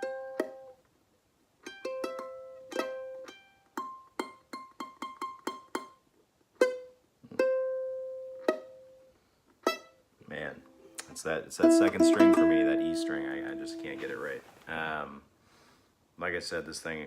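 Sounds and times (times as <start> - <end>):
plucked ukulele notes: 0.0 - 0.8, 1.6 - 6.0, 6.6 - 14.3.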